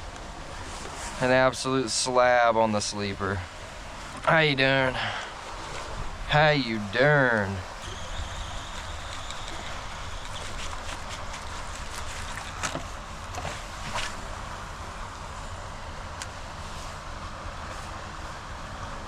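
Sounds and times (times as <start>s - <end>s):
rain: 0.0s - 13.4s.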